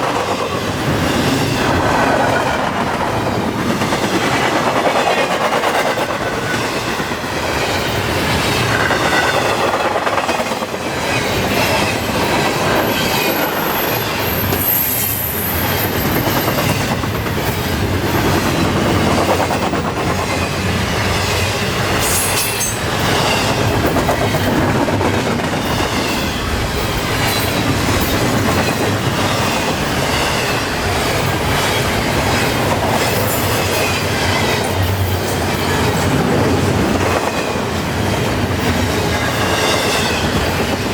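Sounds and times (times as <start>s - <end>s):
freight train wheels rumbling: 0.0s - 40.9s
high wheel squeal: 12.7s - 16.9s.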